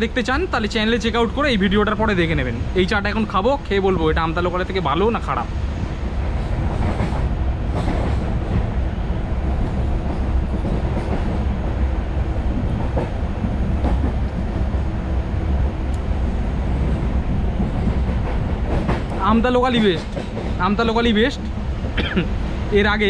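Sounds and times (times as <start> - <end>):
train wheels rumbling on rail: 0.0 - 23.0
faint track clicks: 15.9 - 16.1.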